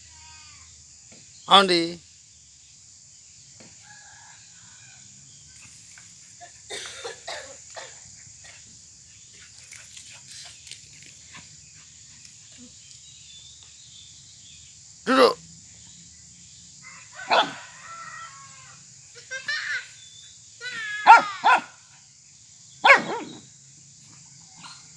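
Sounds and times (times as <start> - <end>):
high insect drone: 0.0 - 24.9.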